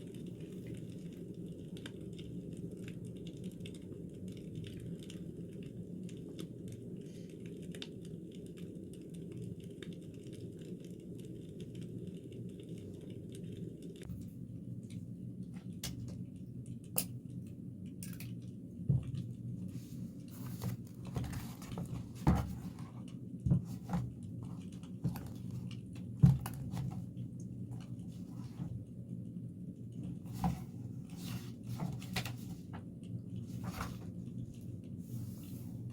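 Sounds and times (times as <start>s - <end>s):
small objects tapping and clicking: 15.6s - 19.4s.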